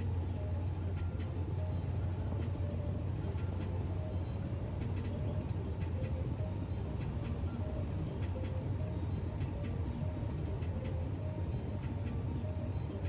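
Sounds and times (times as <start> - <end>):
car engine and tyre noise: 0.0 - 13.0.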